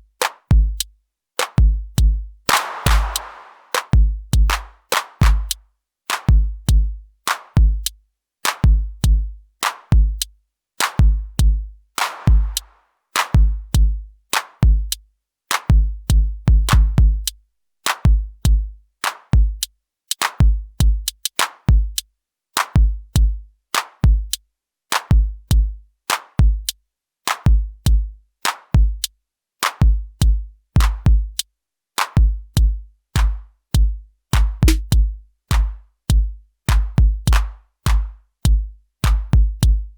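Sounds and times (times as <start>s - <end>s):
electronic drum machine beat: 1.6s - 5.6s, 11.0s - 12.7s, 33.2s - 39.8s.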